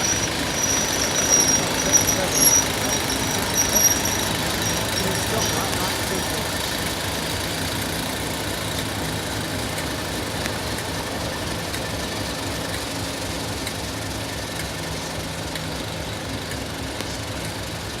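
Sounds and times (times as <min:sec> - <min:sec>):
diesel locomotive engine idling: 0:00.0 - 0:18.0.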